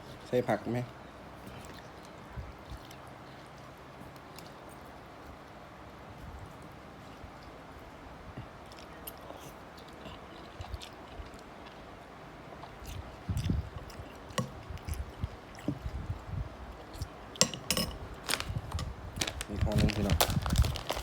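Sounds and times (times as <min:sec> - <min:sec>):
person chewing with clicks: 0:08.4 - 0:11.9, 0:12.6 - 0:16.0.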